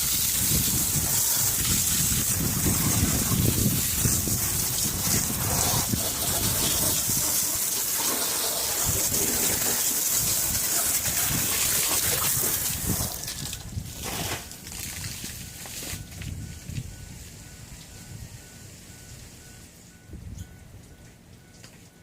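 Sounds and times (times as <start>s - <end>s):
hose water spraying on engine: 0.0s - 16.4s.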